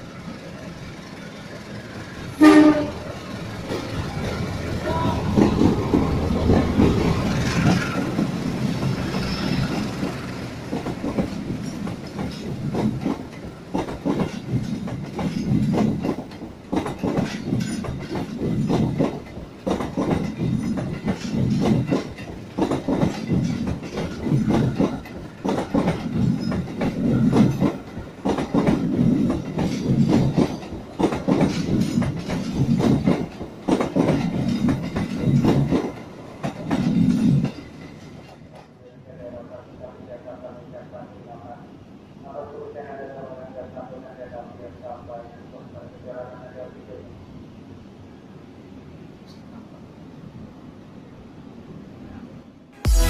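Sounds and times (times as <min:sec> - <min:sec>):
locomotive passing: 0:00.0 - 0:38.6
train wheels clattering over rail joints: 0:05.2 - 0:38.8.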